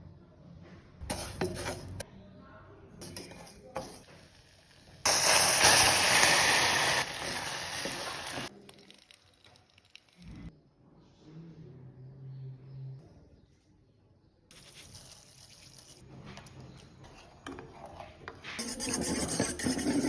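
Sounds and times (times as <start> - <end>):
loud hiss: 5.1 - 8.5.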